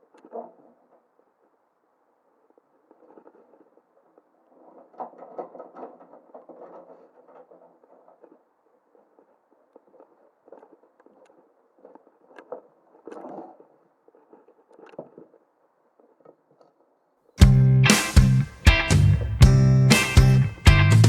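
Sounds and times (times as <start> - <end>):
faint clicks and scrapes: 0.0 - 17.4
loud guitar music: 17.4 - 21.0.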